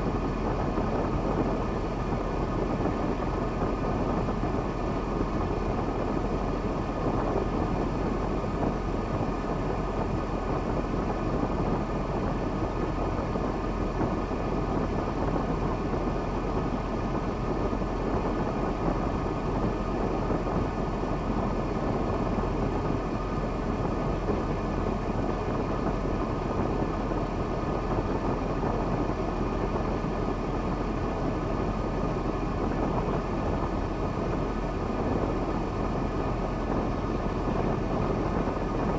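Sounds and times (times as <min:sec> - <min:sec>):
diesel truck engine running: 0:00.0 - 0:38.9.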